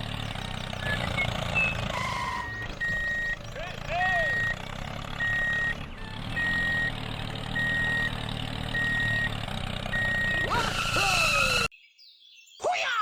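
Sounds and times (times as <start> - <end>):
low engine hum: 0.0 - 11.7
reversing alarm beeping: 0.8 - 3.4, 4.1 - 4.6, 5.2 - 10.9.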